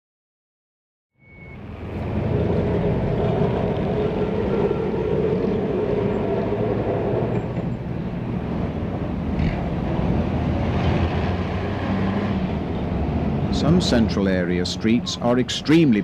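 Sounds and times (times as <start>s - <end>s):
tram motor whine: 1.2s - 9.2s
tram rumbling on track: 1.2s - 16.0s.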